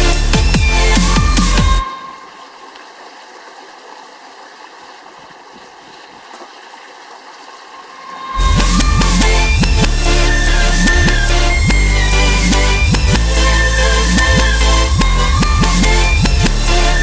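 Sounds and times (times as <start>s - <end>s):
electronic background music: 0.0s - 2.2s, 8.0s - 17.0s
stream water flowing: 0.7s - 16.4s.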